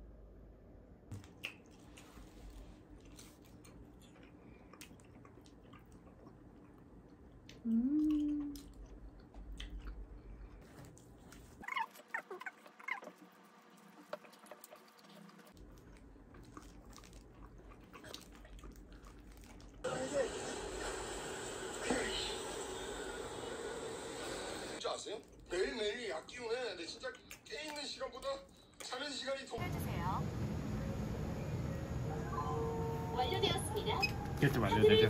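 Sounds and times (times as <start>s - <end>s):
wet chewing clicks: 1.1s - 19.8s, 27.0s - 29.0s
person humming: 7.6s - 8.6s.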